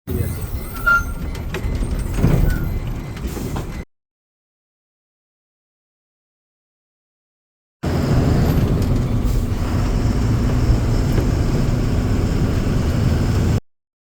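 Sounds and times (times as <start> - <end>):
vehicle engine and road rumble: 0.1 - 3.8, 7.8 - 13.6.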